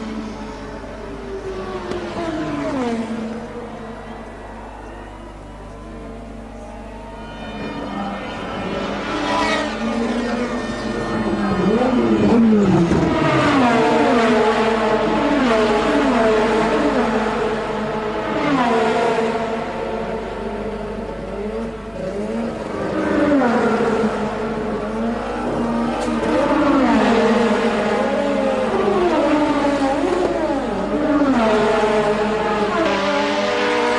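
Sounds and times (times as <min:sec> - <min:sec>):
race car engines revving: 0:00.0 - 0:33.9.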